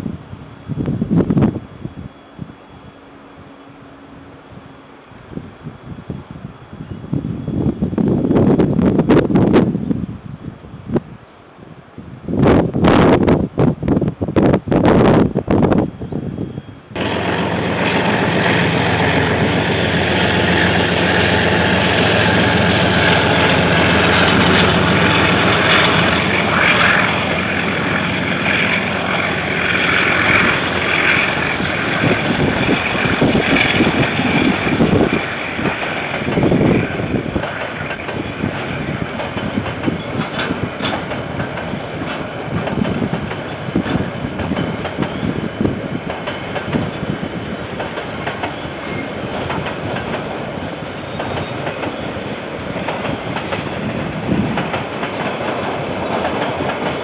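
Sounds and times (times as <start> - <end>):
diesel locomotive engine running: 15.8 - 57.0
wagons clattering over rails: 17.0 - 45.4, 47.8 - 57.0.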